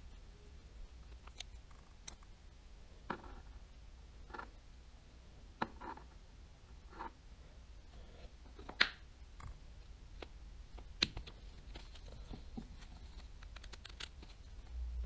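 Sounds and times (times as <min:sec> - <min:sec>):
small reel parts clicking and tapping: 0:09.4 - 0:14.7.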